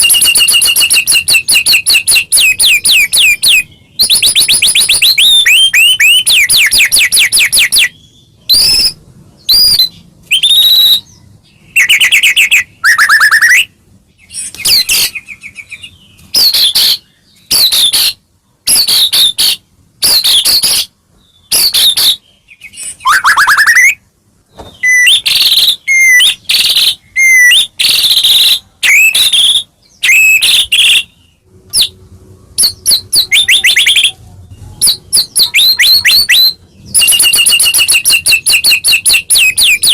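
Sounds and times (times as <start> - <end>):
songbird singing whistles and trills: 0.0 - 24.0, 24.6 - 39.9.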